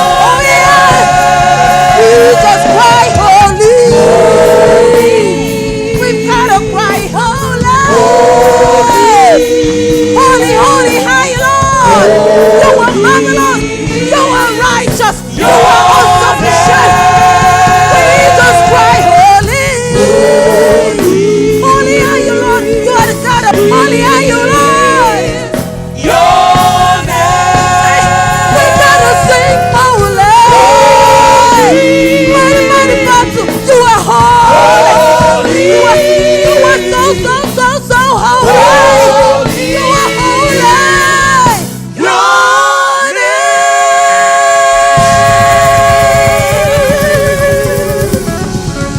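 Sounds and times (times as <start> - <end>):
band playing gospel music: 0.0 - 48.9
choir singing: 0.0 - 48.9
person singing: 45.0 - 48.5.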